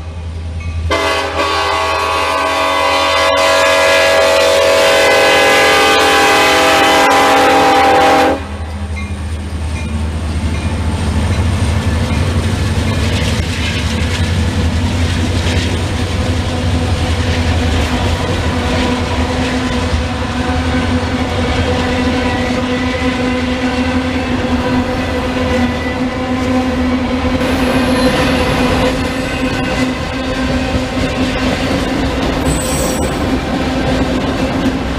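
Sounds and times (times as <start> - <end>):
train engine rumble: 0.0 - 34.9
wheel noise on rails: 0.0 - 34.9
locomotive air horn chord: 0.9 - 8.7.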